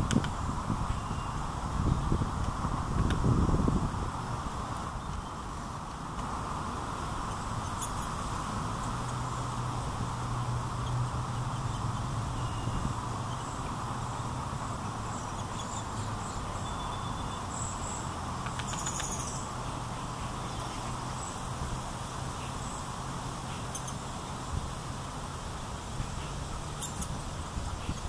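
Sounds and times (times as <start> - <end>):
outdoor background hum: 0.0 - 28.0
faint bird chirps: 0.9 - 2.0, 10.8 - 13.6, 15.0 - 21.4, 26.2 - 28.0.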